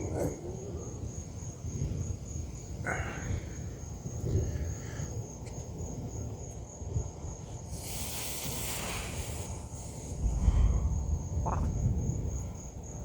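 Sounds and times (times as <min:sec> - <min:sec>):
crickets chirping: 0:00.0 - 0:13.0
rushing hiss: 0:07.6 - 0:11.4
distant thunder rumble: 0:09.5 - 0:13.0.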